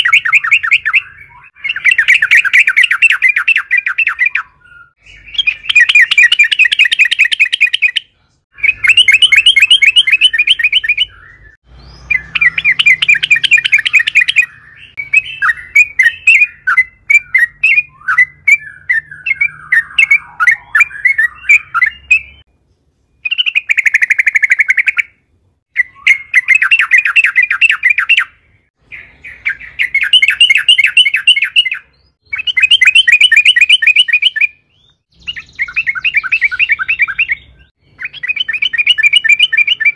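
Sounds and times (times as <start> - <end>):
bird chattering calls: 12.0 - 22.4.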